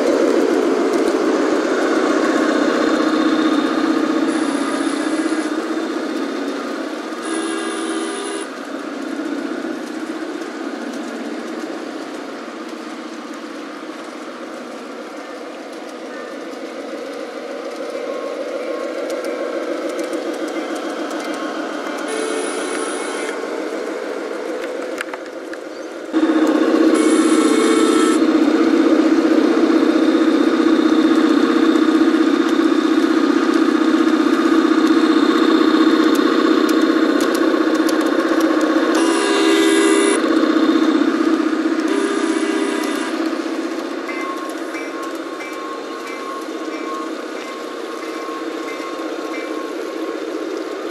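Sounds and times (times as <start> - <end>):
model railcar motor hum: 0.0 - 50.9
wheel and rail noise: 0.0 - 50.9
brief held tone: 7.2 - 8.5, 22.1 - 23.4, 26.9 - 28.2, 39.0 - 40.2, 41.9 - 43.2.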